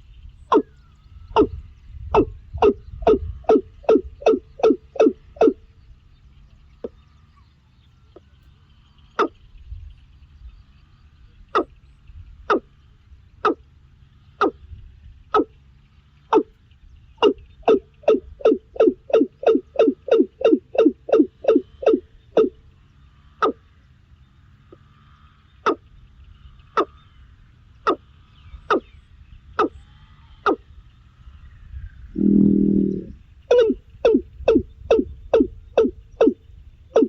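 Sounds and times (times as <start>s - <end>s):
bird calling: 0.4s - 5.6s, 9.2s - 9.4s, 11.5s - 11.8s, 12.5s - 12.7s, 13.4s - 13.6s, 14.4s - 14.6s, 15.3s - 15.6s, 16.3s - 16.6s, 17.2s - 22.6s, 23.4s - 23.6s, 25.6s - 25.9s, 27.8s - 29.8s, 30.4s - 30.8s, 32.1s - 37.0s.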